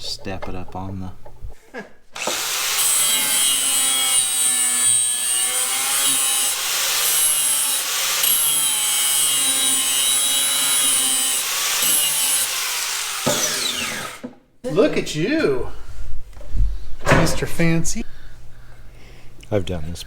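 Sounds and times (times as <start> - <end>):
electric grinder grinding steel: 2.2 - 14.2.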